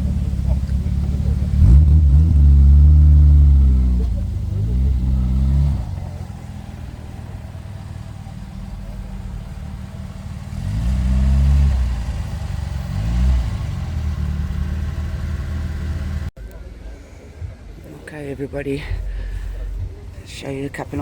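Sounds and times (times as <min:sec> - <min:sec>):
car engine revving: 0:00.0 - 0:16.3.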